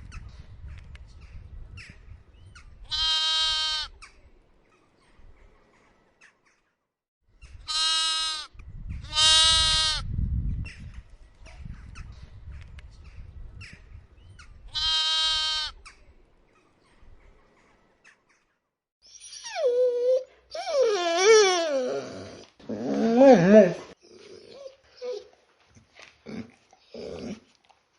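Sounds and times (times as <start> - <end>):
farm animal bleating: 2.9 - 4.0, 7.7 - 10.1, 14.7 - 15.8.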